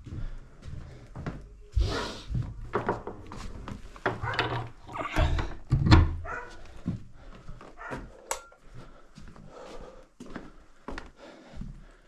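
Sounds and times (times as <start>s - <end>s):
objects knocking and thudding: 2.7s - 6.3s.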